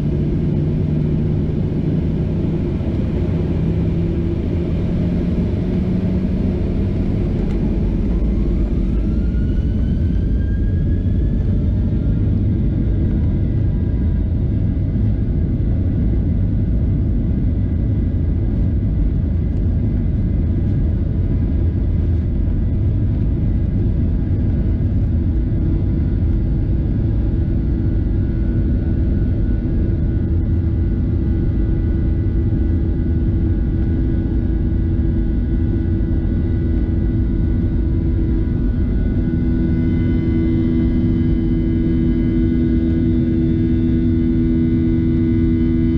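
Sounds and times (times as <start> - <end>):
jet engine rumble in cabin: 0.0 - 45.9
low steady hum: 0.0 - 45.9.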